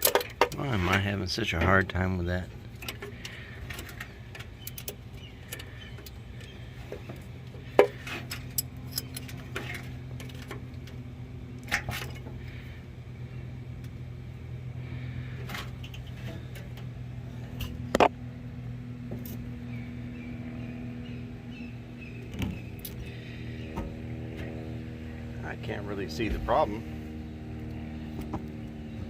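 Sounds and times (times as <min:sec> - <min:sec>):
steady low hum: 0:00.0 - 0:29.0
wrench clinking against metal: 0:08.3 - 0:09.4.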